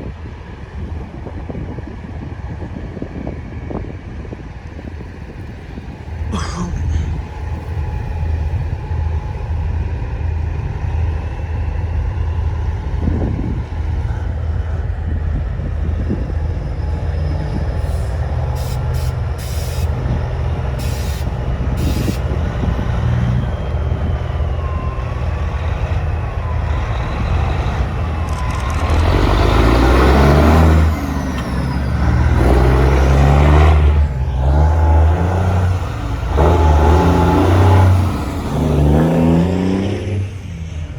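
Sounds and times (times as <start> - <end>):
diesel truck engine rumbling: 4.7 - 40.9
air brakes hissing: 17.8 - 20.0, 20.7 - 22.4.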